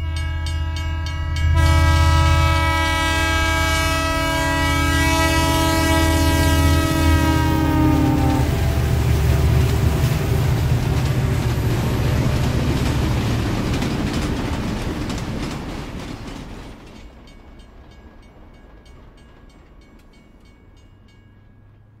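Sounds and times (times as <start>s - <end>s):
train rumbling: 0.0s - 22.0s
rhythmic wheel clatter: 8.8s - 20.8s.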